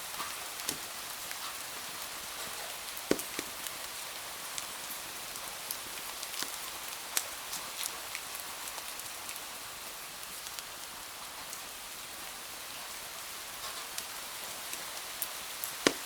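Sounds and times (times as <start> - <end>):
steady rain hiss: 0.0 - 16.0
sharp ticks and pops: 3.1 - 3.5.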